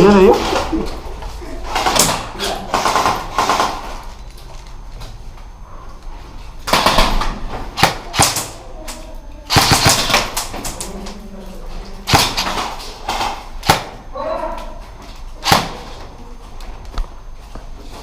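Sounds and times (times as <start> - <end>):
airsoft gun bursts: 7.8 - 8.6, 9.5 - 10.8, 12.1 - 13.9.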